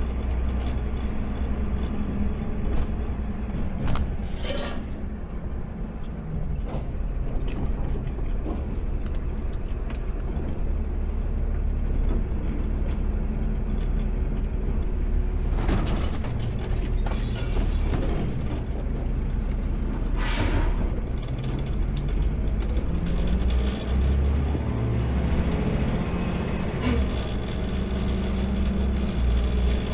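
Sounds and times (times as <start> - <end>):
truck engine rumbling: 0.0 - 29.9
air brake hiss: 20.2 - 21.0.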